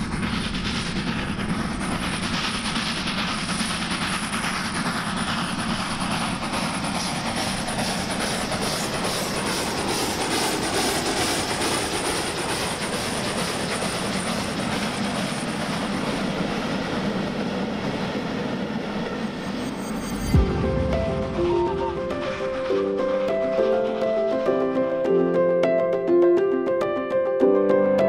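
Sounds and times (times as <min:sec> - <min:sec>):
wheels clacking on rails: 0:00.0 - 0:19.8
train rumbling on rails: 0:00.0 - 0:26.5.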